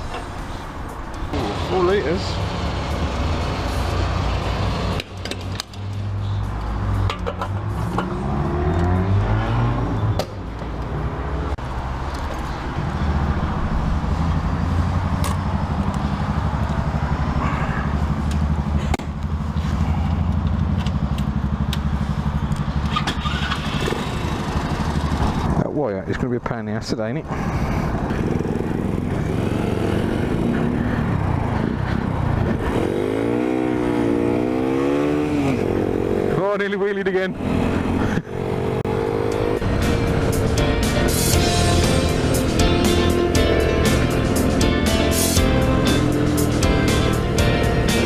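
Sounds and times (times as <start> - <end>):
small motorbike engine revving: 22.7 - 25.4.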